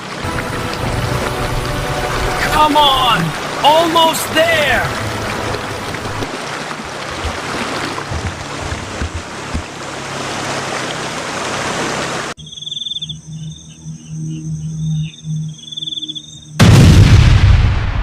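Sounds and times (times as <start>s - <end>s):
crickets chirping: 12.4s - 16.6s.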